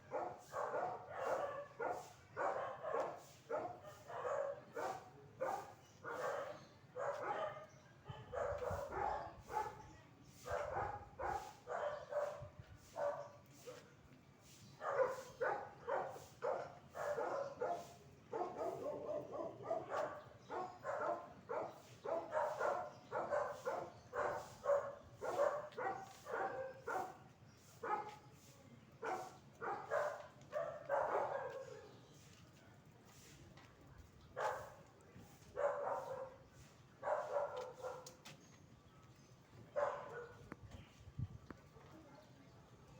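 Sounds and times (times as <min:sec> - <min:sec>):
dog barking: 0:00.0 - 0:09.8, 0:10.4 - 0:13.8, 0:14.8 - 0:28.2, 0:29.0 - 0:31.9, 0:34.4 - 0:34.8, 0:35.6 - 0:36.4, 0:37.0 - 0:38.2, 0:39.7 - 0:40.4.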